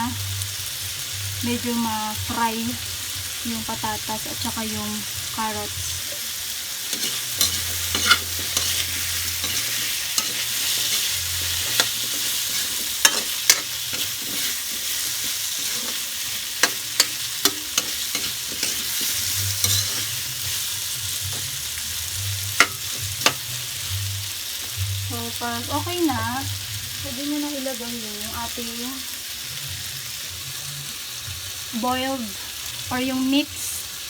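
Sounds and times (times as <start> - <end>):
vegetables sizzling in oil: 0.0 - 34.0
utensil scraping a pan: 6.1 - 21.6.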